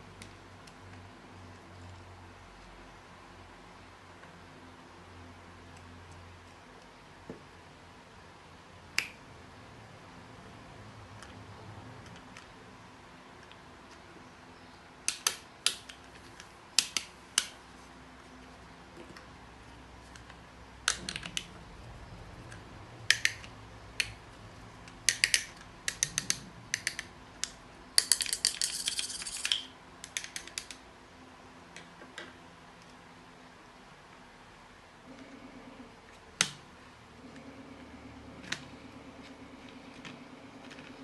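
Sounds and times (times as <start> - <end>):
small hard objects clicking: 25.1 - 30.8.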